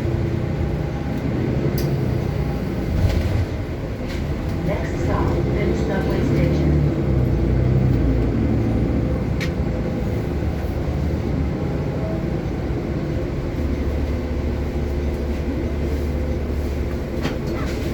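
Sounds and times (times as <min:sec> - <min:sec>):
transit vehicle rumble: 0:00.0 - 0:17.9.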